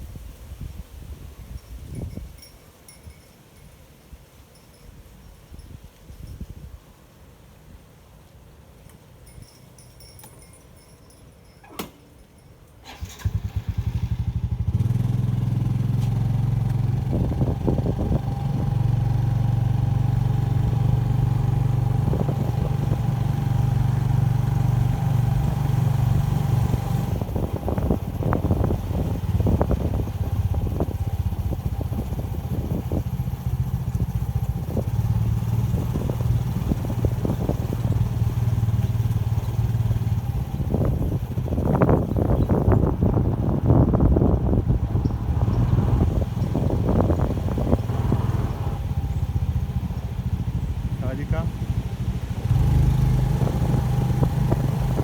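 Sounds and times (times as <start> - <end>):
motorbike engine running: 12.9 - 55.0.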